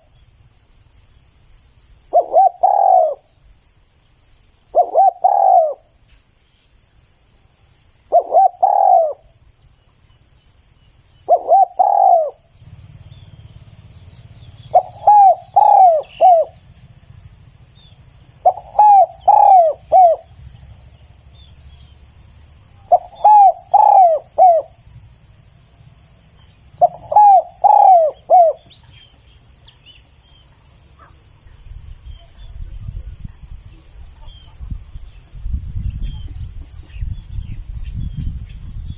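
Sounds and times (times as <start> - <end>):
dove cooing: 2.1 - 3.3, 4.7 - 5.9, 8.1 - 9.3, 11.2 - 12.5, 13.4 - 16.8, 18.4 - 20.6, 22.8 - 24.8, 26.8 - 28.8.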